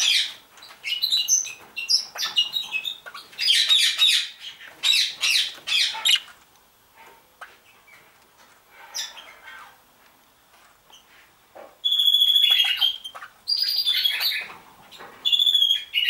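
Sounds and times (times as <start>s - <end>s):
budgerigars chirping and squawking: 0.0s - 6.4s, 8.8s - 9.8s, 11.8s - 16.0s.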